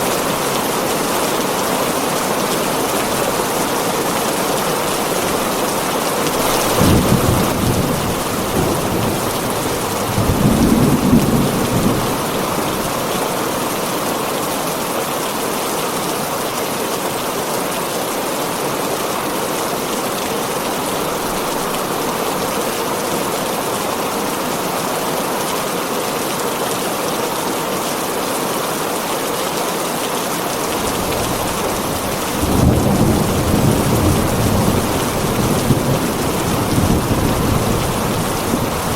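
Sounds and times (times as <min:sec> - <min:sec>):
thunder rumbling: 0:00.0 - 0:13.1, 0:30.8 - 0:38.9
heavy rain on a tin roof: 0:00.0 - 0:38.9.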